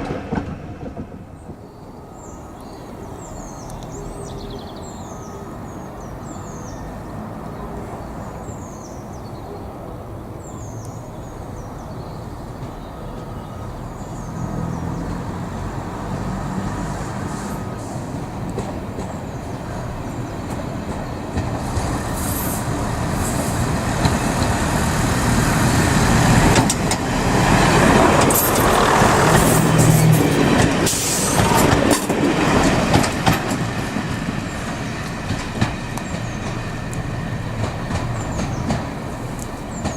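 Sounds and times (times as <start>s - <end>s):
train approaching: 0.0s - 39.9s
birds chirping: 1.4s - 39.9s
wheels clicking over rail joints: 18.1s - 39.9s.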